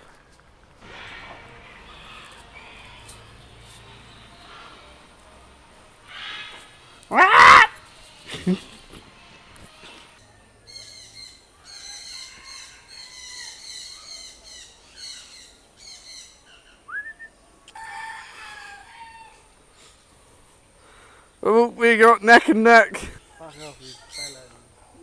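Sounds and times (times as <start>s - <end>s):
loud bird call: 0.8s - 8.8s
birds chirping rapidly: 0.8s - 8.9s, 10.3s - 16.9s, 20.8s - 25.0s.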